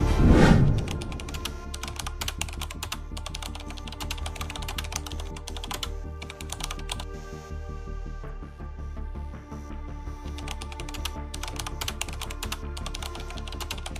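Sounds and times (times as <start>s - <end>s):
background music with bass line: 0.0s - 13.9s
computer keyboard typing: 0.8s - 7.1s, 10.4s - 13.9s.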